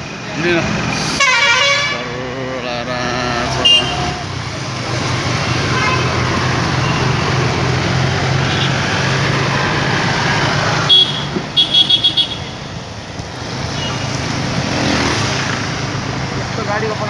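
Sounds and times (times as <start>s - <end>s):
motorcycle engine and road noise: 0.0s - 17.0s
vehicle horn toot: 1.2s - 2.1s, 3.5s - 4.2s, 10.9s - 12.5s.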